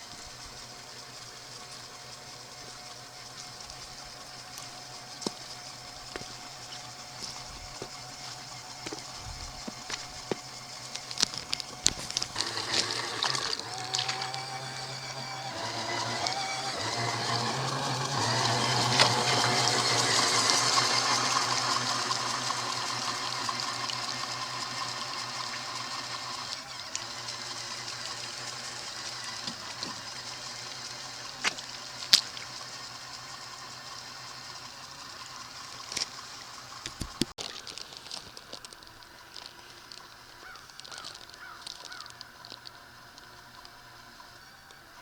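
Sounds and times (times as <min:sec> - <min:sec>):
water splashing and churning: 0:00.0 - 0:33.2
small electric motor running: 0:00.0 - 0:45.0.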